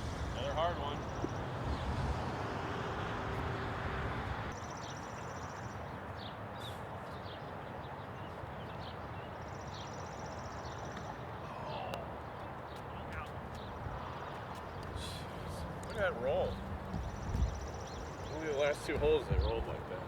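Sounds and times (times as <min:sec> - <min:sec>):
wind rumble on microphone: 0:00.0 - 0:04.5, 0:13.6 - 0:20.0.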